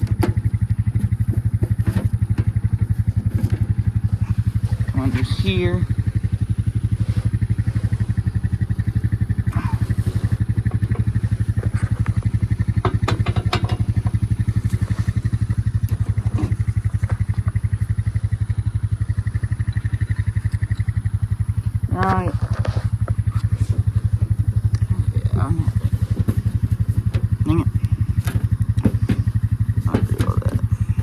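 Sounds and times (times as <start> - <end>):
vehicle engine idling: 0.0 - 31.0
sharp clicks and clatters: 10.6 - 17.6.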